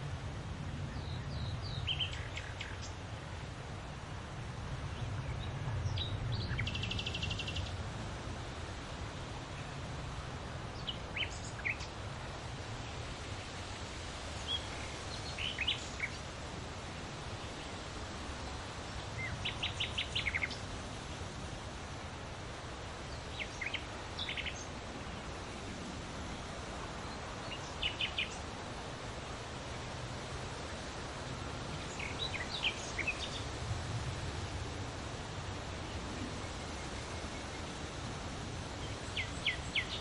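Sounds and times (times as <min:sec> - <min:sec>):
wind rustling through leaves: 0:00.0 - 0:40.0
small birds chirping: 0:00.9 - 0:03.0, 0:04.9 - 0:07.8, 0:10.7 - 0:12.0, 0:12.8 - 0:16.4, 0:17.1 - 0:21.4, 0:22.6 - 0:25.7, 0:26.6 - 0:33.6, 0:38.6 - 0:40.0.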